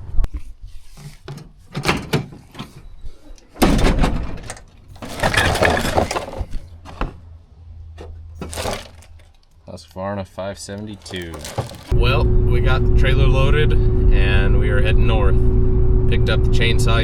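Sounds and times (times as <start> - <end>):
crashing and breaking: 3.7 - 7.1, 8.4 - 9.6, 10.8 - 12.0.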